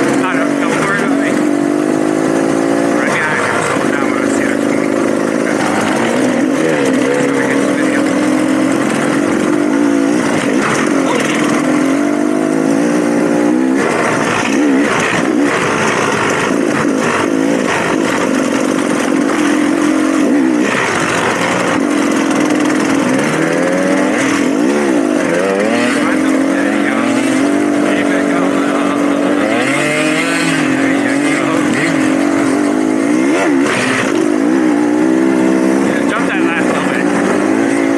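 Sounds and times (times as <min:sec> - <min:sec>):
dirt bike engine revving: 0:00.0 - 0:37.9
knocks and clatter: 0:03.1 - 0:11.8.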